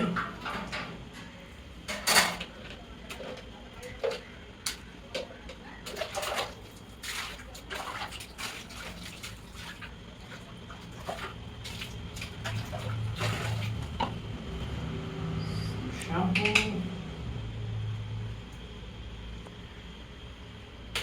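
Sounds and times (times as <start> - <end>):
water splashing and sloshing: 5.8 - 14.4.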